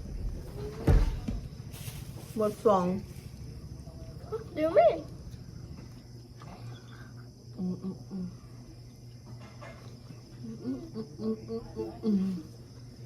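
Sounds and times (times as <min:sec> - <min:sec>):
insects trilling: 0:00.0 - 0:13.0
person humming: 0:07.5 - 0:08.4, 0:10.4 - 0:12.6.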